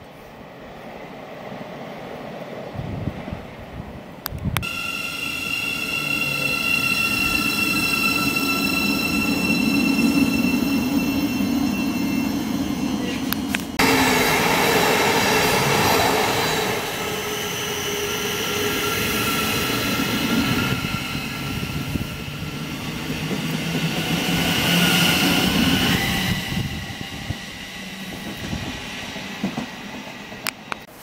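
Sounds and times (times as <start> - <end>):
train wheel and body noise: 23.0 - 31.0.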